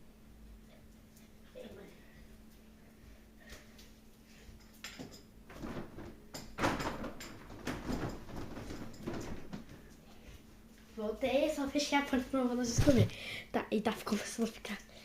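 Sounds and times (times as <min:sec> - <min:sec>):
knocks and scraping: 0:05.0 - 0:09.9
door being shut: 0:05.5 - 0:09.5.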